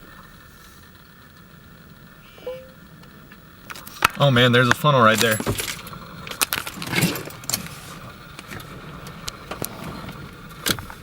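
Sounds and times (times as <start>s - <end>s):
low steady background noise: 0.0s - 11.0s.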